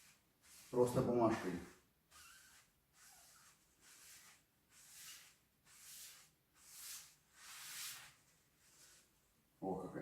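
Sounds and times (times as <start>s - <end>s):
paper scrubbing glass: 0.0s - 9.0s.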